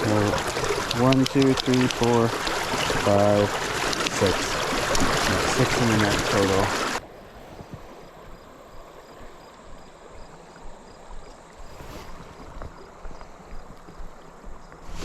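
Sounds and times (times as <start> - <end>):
small splashes: 0.0 - 7.0
river water flowing and lapping: 0.0 - 15.0.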